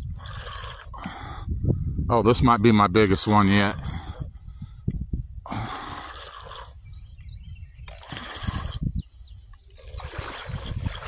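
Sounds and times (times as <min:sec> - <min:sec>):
small birds chirping: 0:06.0 - 0:11.0.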